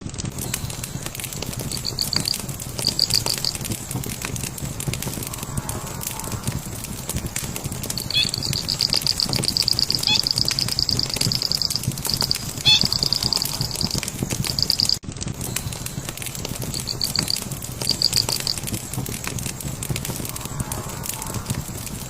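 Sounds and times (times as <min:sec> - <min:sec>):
fire crackling and popping: 0:00.0 - 0:22.0
bird trilling: 0:01.7 - 0:03.6, 0:07.9 - 0:15.0
low rumble: 0:01.7 - 0:15.0, 0:15.8 - 0:22.0.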